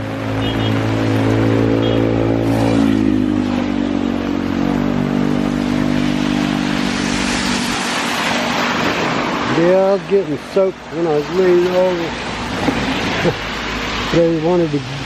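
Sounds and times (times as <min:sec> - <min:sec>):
vehicle engine passing: 0:00.0 - 0:14.1
heavy rain hiss: 0:05.1 - 0:15.0.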